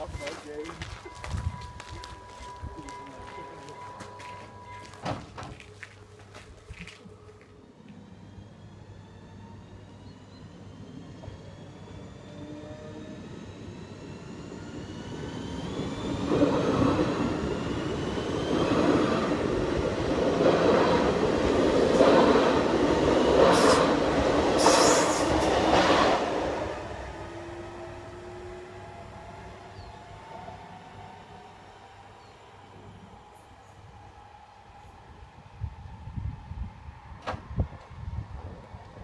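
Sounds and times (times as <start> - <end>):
electric train passing: 0.0 - 39.0
train wheels screeching: 23.2 - 26.2.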